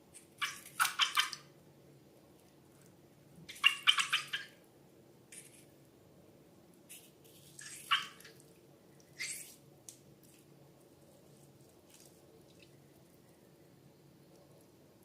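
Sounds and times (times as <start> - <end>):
slime squelching and dripping: 11.6 - 12.8.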